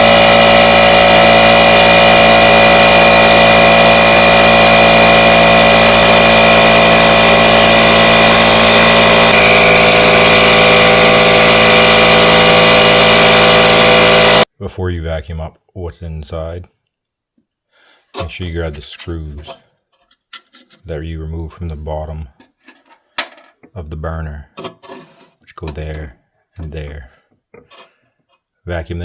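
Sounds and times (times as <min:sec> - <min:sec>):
compressed air blowing: 0:00.0 - 0:14.5
vacuum cleaner motor whining: 0:00.0 - 0:14.5.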